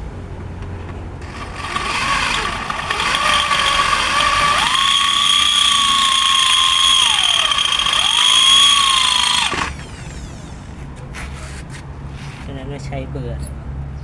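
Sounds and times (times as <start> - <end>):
angle grinder grinding metal: 1.2 - 10.8.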